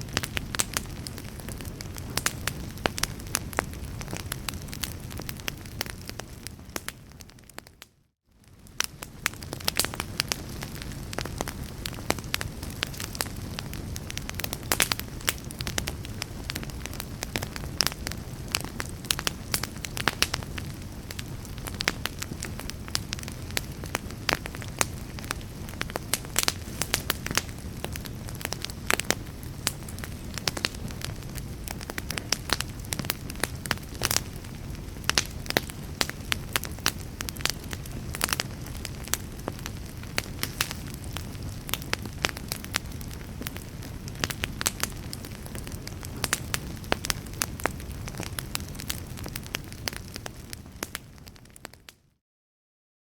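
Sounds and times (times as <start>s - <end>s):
fire crackling and popping: 0.0s - 52.0s.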